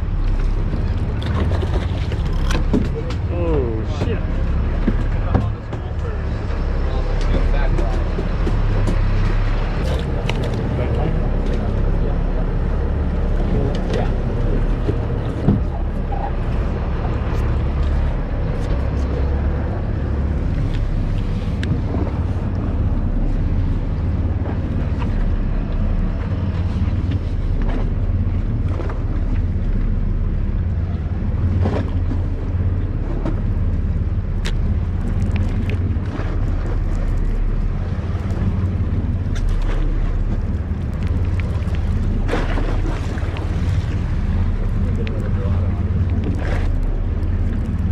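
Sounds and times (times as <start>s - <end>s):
boat engine drone: 0.0s - 47.9s
faint clicks: 34.4s - 36.1s.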